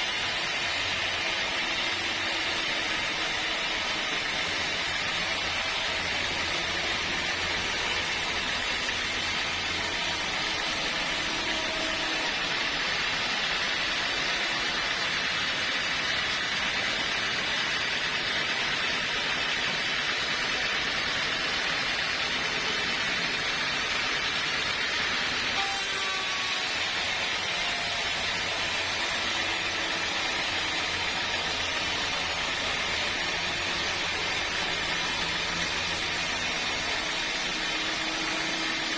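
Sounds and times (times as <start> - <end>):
sawmill machinery whirring: 0.0 - 38.9.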